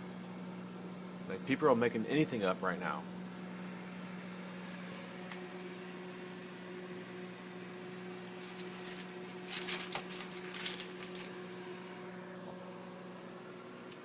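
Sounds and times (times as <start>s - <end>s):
microwave oven humming: 0.0s - 14.0s
rustling or crackling noises: 8.4s - 11.4s.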